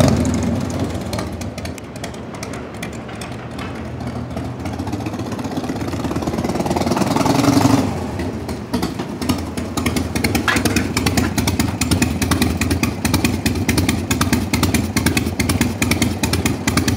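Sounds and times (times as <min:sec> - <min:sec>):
motorcycle engine revving: 0:00.0 - 0:16.9.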